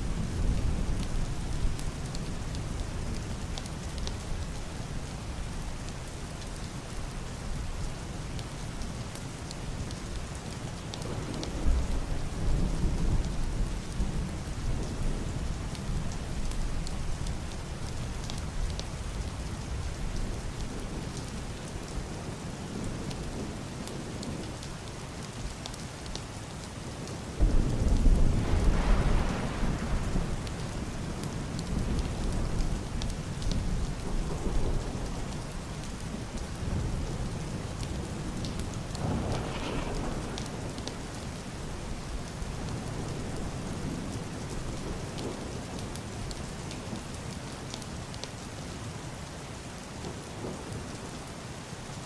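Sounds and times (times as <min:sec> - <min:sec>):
heavy rain on roof and window: 0:00.0 - 0:52.0
muffled thunder rumbling: 0:11.0 - 0:16.6, 0:27.3 - 0:45.9.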